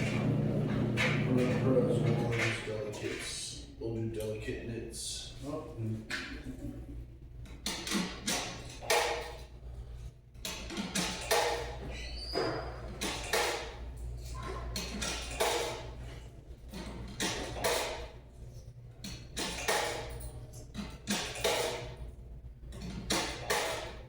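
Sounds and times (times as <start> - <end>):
washing machine clunks and rustles: 0.0 - 3.3, 7.4 - 9.5, 10.4 - 18.3, 19.0 - 24.0
low machine hum: 0.0 - 7.6.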